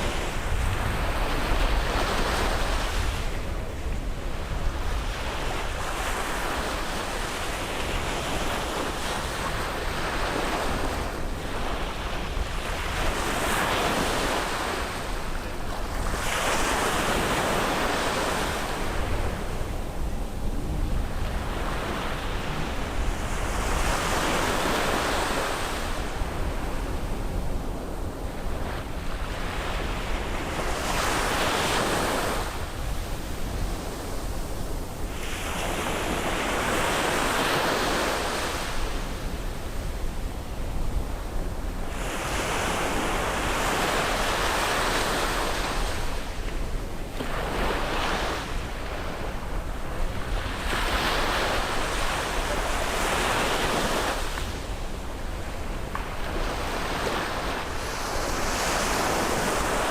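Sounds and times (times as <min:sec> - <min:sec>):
ocean waves breaking on beach: 0:00.0 - 0:59.9
wind rumble on microphone: 0:00.0 - 0:59.9.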